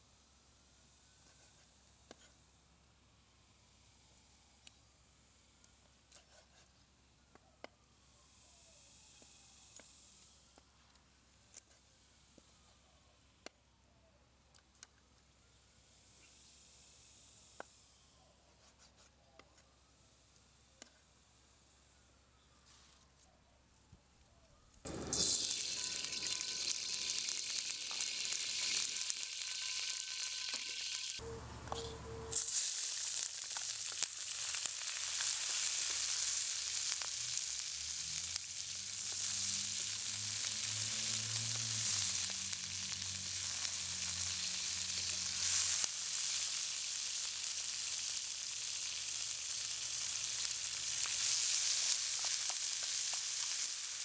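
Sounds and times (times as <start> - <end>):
food sizzling in hot oil: 24.9 - 31.2, 32.3 - 54.0.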